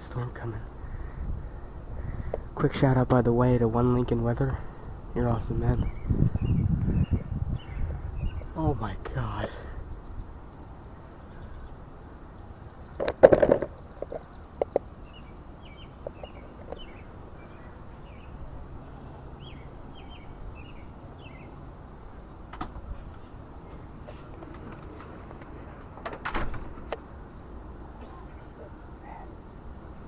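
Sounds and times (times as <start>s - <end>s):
wind noise: 0.8s - 2.6s, 4.2s - 10.4s
faint bird chirps: 27.4s - 29.7s.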